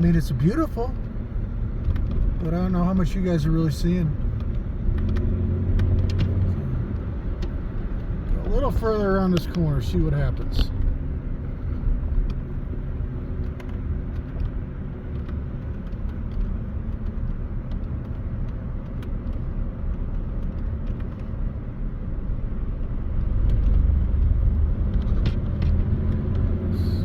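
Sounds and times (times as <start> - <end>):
car engine and road rumble: 0.0 - 27.0
small clicks and rattles: 13.3 - 21.5.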